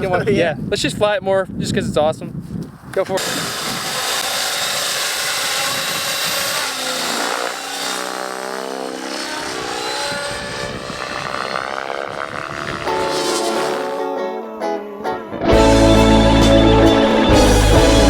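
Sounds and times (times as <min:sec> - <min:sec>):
model helicopter rotor whine: 0:03.2 - 0:14.1.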